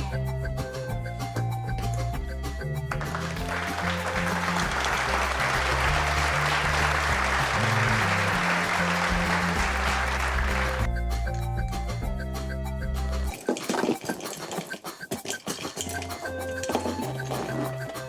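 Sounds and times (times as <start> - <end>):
background music: 0.0 - 18.0
applause: 2.9 - 10.9.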